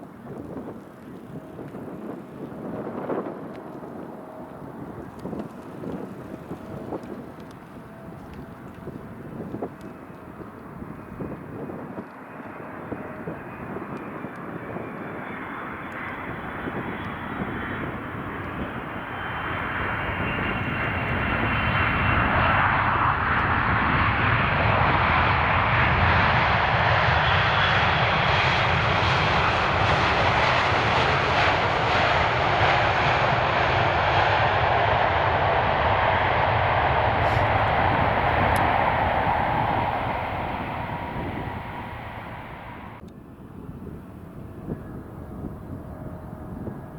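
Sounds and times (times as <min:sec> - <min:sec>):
jet aircraft engines: 0:00.0 - 0:46.9.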